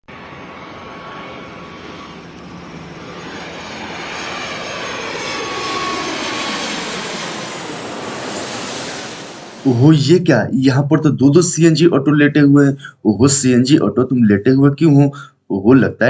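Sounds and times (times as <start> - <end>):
aircraft engine drone: 0.0 - 10.3.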